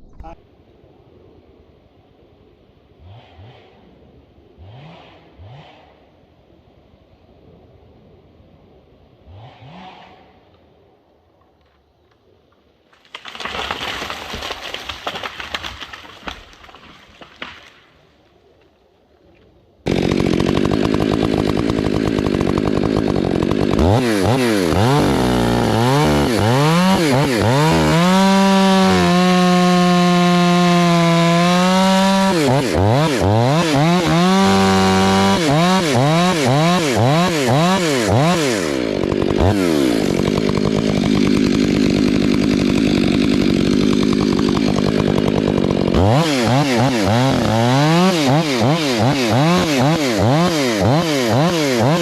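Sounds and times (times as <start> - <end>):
chainsaw revving: 3.0 - 4.0, 4.6 - 6.1, 9.2 - 10.5, 19.8 - 52.0.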